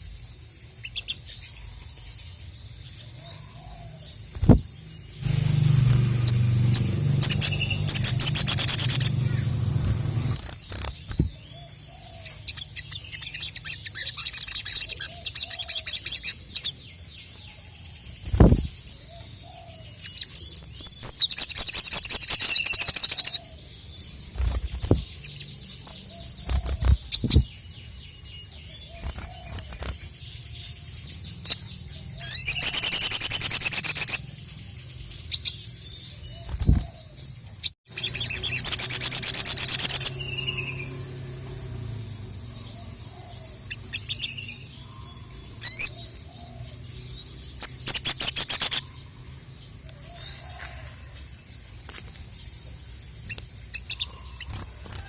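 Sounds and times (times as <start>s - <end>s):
low thumps: 4.4s - 10.4s
fast high repeated chirping: 6.2s - 11.3s.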